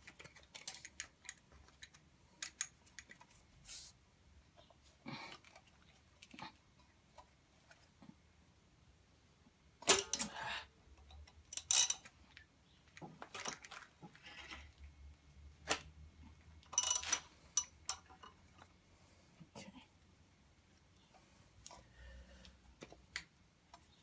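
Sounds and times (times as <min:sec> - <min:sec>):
metallic tool clinks: 0:09.9 - 0:10.3.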